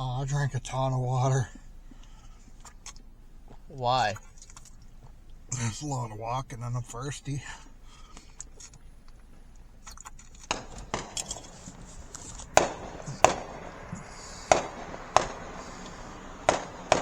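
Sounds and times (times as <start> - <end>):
fireworks bangs: 8.7 - 17.0.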